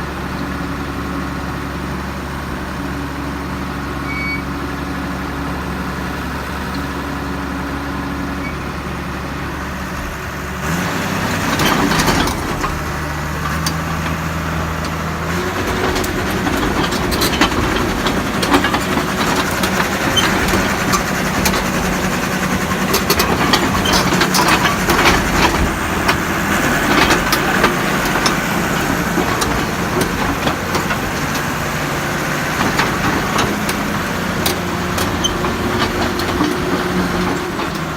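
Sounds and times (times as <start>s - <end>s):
bulldozer diesel engine running: 0.0s - 37.9s
metallic clicks and clanks: 22.8s - 26.2s.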